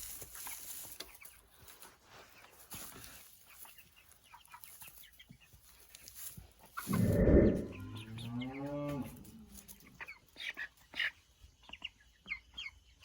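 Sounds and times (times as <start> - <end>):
chickens clucking softly: 0.4 - 8.7, 9.5 - 13.0
chicken long pitched call: 6.9 - 8.7.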